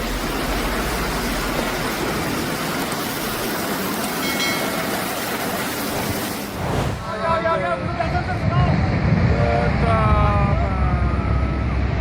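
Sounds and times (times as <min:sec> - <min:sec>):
rushing floodwater roar: 0:00.0 - 0:07.2.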